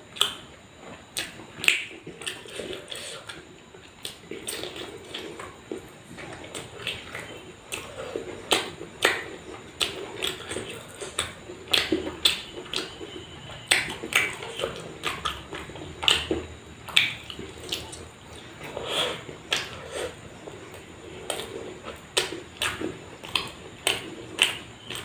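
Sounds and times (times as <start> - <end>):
wet chewing: 0.1 - 25.0.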